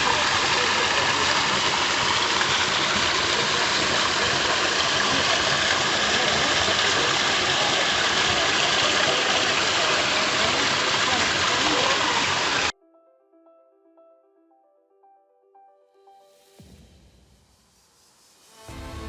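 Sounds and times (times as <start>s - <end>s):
waterfall rushing: 0.0s - 12.7s.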